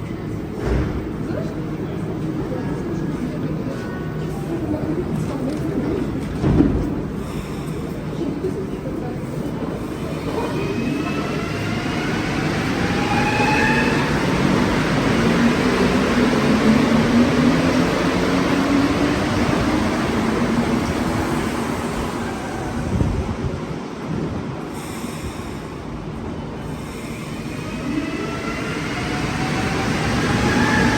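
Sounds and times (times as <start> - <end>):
metro train motors whining: 9.0 - 30.9.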